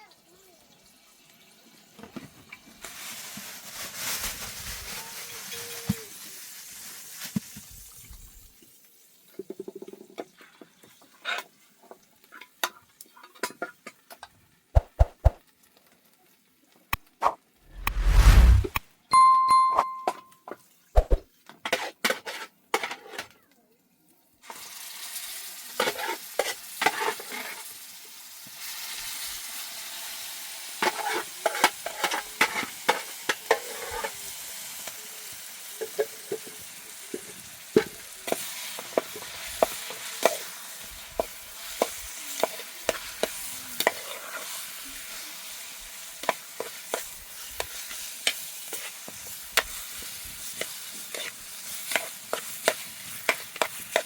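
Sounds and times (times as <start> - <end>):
food sizzling in a pan: 0.0 - 14.2, 24.4 - 54.0
utensil scraping a pan: 46.2 - 54.0.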